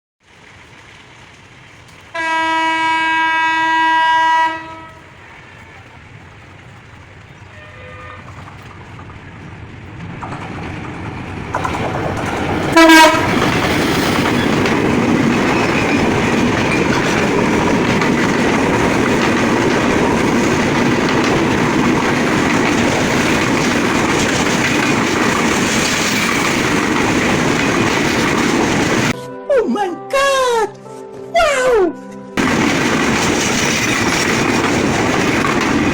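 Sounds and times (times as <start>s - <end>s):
train rumbling: 0.2s - 29.2s, 32.4s - 35.9s
wheels clattering on rail joints: 0.2s - 29.2s, 32.4s - 35.9s
locomotive horn blast: 2.1s - 5.6s, 7.4s - 8.4s, 12.7s - 13.5s.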